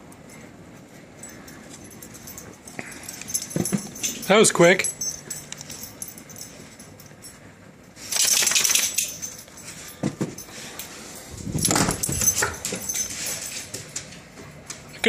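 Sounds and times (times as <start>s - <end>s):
dogs moving about: 8.0s - 15.0s.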